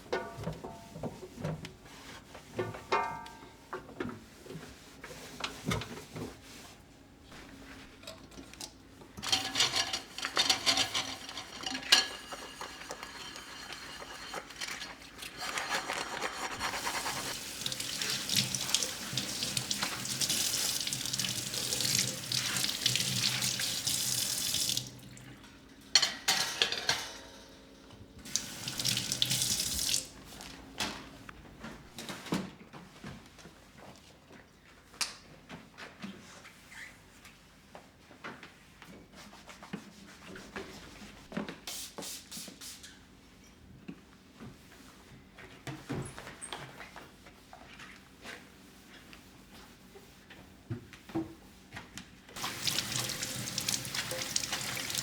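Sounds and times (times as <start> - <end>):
tap running into sink: 28.2 - 30.1, 52.4 - 55.0.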